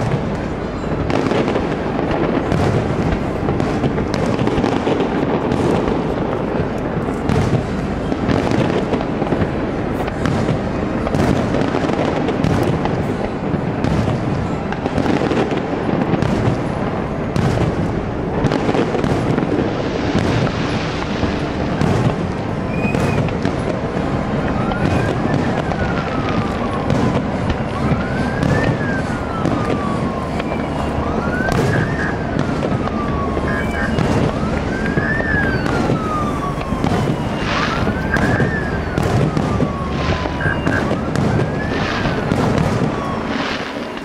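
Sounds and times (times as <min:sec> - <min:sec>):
fireworks booming and crackling: 0:00.0 - 0:44.0.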